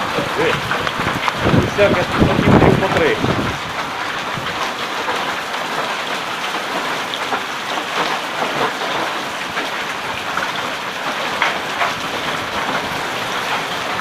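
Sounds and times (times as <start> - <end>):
hailstones tapping: 0.0 - 14.0
heavy rain hissing: 0.0 - 14.0.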